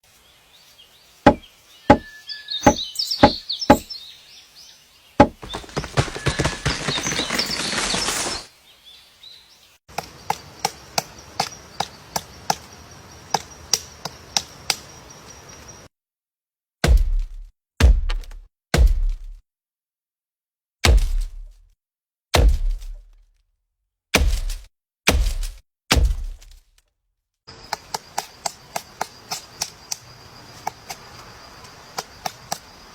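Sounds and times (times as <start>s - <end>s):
sharp knocks on wood: 1.3s - 3.9s, 5.2s - 7.3s
thump with deep rumble: 16.8s - 19.4s, 20.8s - 21.6s, 22.4s - 23.1s, 24.2s - 26.5s.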